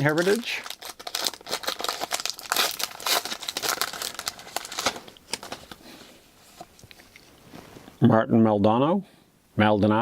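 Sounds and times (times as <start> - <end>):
plastic wrapper tearing and crinkling: 0.0 - 5.9.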